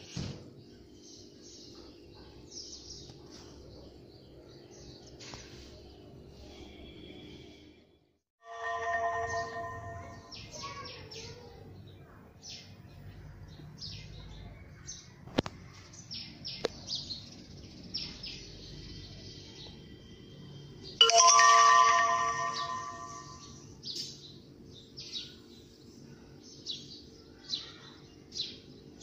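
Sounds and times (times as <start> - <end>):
ringing chime: 8.4 - 10.7, 21.0 - 23.6.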